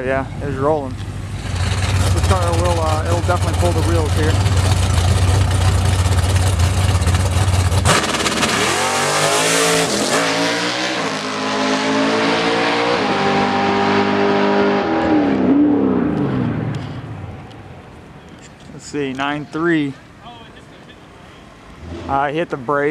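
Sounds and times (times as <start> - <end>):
drag race car engine revving: 0.5 - 17.4, 21.8 - 22.5.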